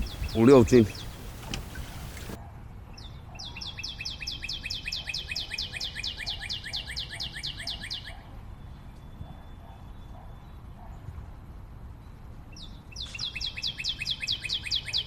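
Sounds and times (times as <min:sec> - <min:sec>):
bird trilling high chirps: 0:00.0 - 0:02.4.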